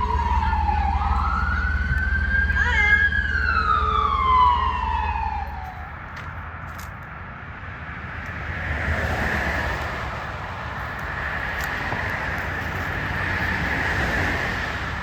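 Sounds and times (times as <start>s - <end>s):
siren wailing: 0.0s - 6.1s
vehicle engine rumble: 0.0s - 15.0s.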